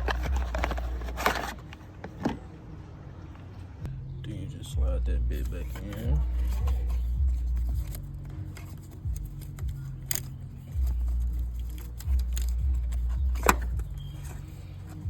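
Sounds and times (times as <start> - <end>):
low rumble: 3.8 - 15.0.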